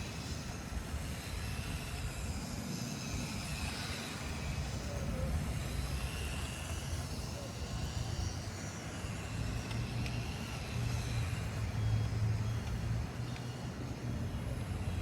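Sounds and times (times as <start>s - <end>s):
toy car motor and gears whirring: 0.0s - 15.0s
faint clicks: 9.6s - 10.2s, 12.5s - 13.6s.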